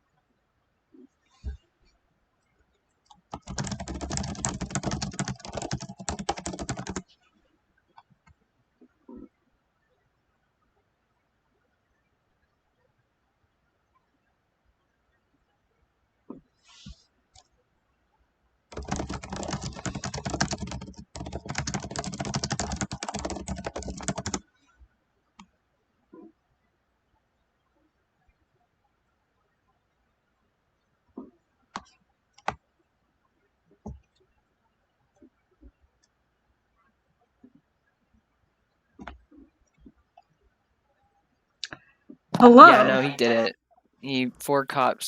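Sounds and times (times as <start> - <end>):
rapid typing on keyboard: 3.1 - 7.1, 18.7 - 24.5, 31.8 - 32.6.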